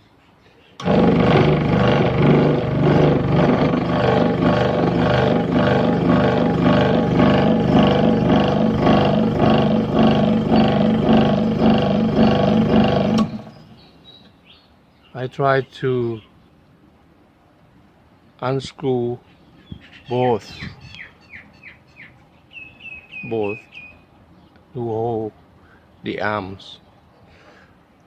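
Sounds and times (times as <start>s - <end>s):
pulsing rattle of machine vibrating: 0.8s - 13.8s
scroll saw running: 0.8s - 13.8s.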